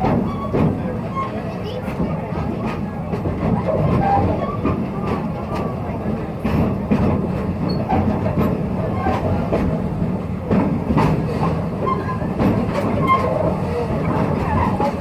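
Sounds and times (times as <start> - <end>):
train rumbling on track: 0.0 - 15.0
wheels clicking over rails: 0.0 - 15.0.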